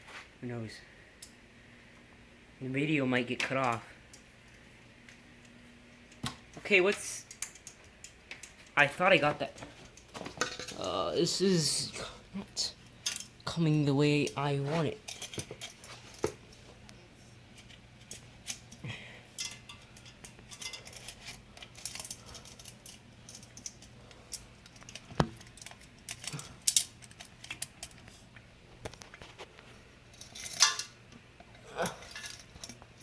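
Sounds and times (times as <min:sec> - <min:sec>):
metal parts clinking: 0:09.8 - 0:11.0, 0:13.0 - 0:13.3, 0:15.0 - 0:16.2, 0:19.4 - 0:28.0, 0:30.1 - 0:31.0, 0:31.8 - 0:32.8.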